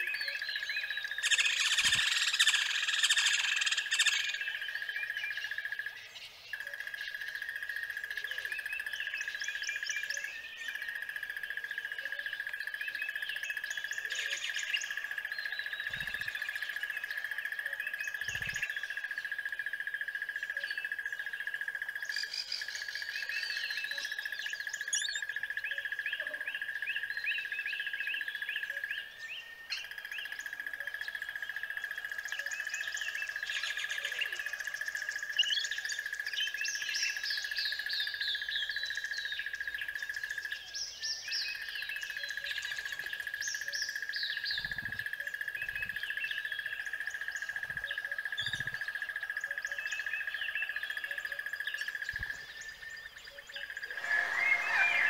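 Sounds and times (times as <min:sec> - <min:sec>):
birds chirping and twittering: 0:00.0 - 0:55.0
steady high-pitched tone: 0:53.9 - 0:55.0.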